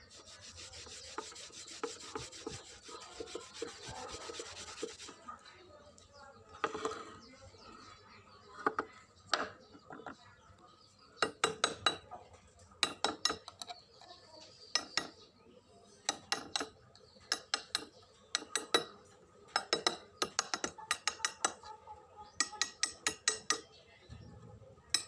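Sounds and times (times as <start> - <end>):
hand scraping an object: 0.0 - 5.2.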